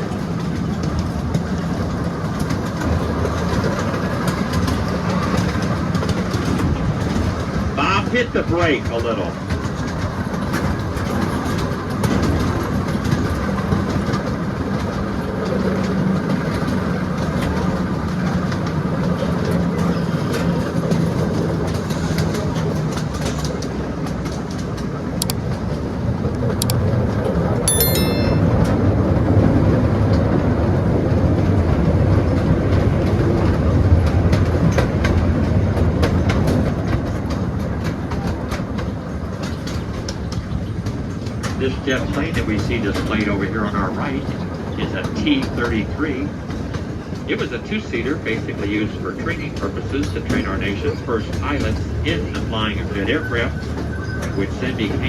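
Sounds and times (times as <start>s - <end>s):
train wheels clickety-clack on rails: 0.0s - 25.8s, 30.2s - 55.0s.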